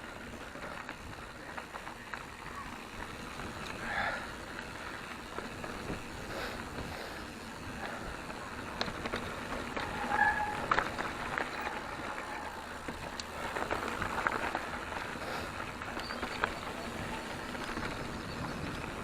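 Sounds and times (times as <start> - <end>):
bike tyres on loose ground: 0.0 - 19.0.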